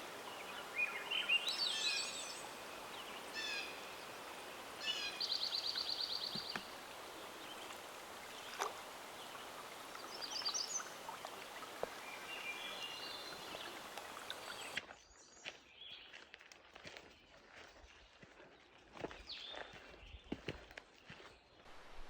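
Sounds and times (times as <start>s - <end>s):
steady outdoor hiss: 0.0s - 14.8s, 21.7s - 22.0s
songbirds singing: 0.0s - 16.2s, 17.1s - 22.0s.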